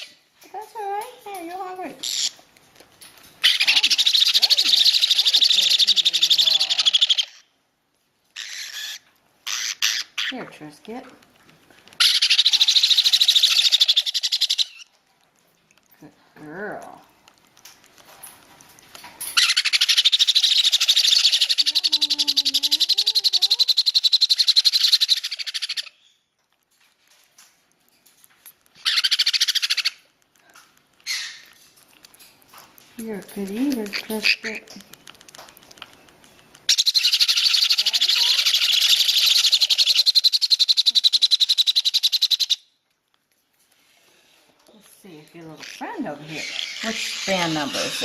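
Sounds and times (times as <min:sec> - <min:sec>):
baby parrot begging call: 0:03.4 - 0:07.4, 0:08.4 - 0:10.4, 0:12.0 - 0:14.9, 0:19.4 - 0:26.1, 0:28.8 - 0:30.0, 0:31.0 - 0:31.5, 0:36.7 - 0:42.6, 0:45.6 - 0:48.0.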